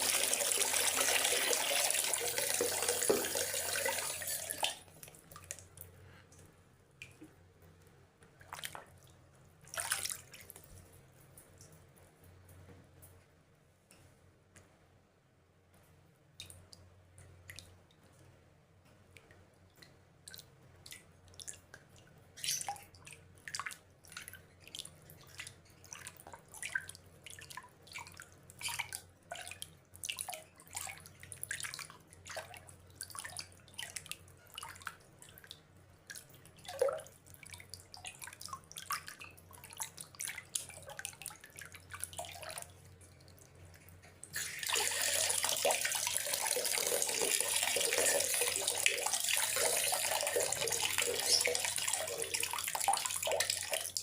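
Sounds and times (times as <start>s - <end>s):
pouring water rush: 0.0s - 4.7s
water drops dripping: 44.5s - 54.0s.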